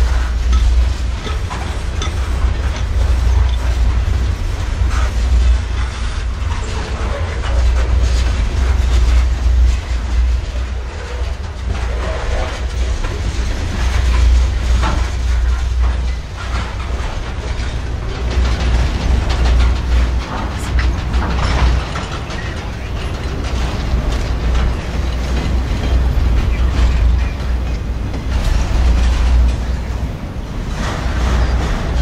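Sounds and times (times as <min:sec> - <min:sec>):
train cars clanking: 0:00.0 - 0:32.0
wheels rumbling on rail: 0:00.0 - 0:32.0.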